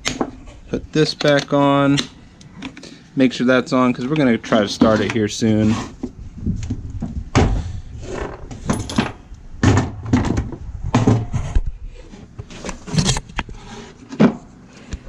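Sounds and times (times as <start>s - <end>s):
knocks and clatter of chainsaw parts: 6.6s - 11.3s.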